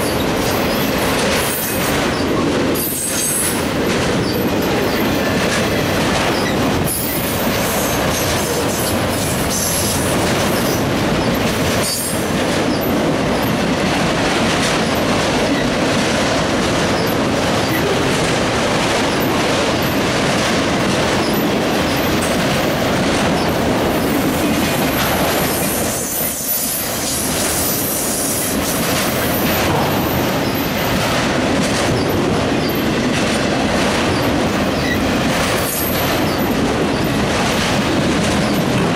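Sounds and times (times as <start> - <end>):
clicking over rail joints: 0.0 - 38.9
steel wheels rumbling on rail: 0.0 - 38.9.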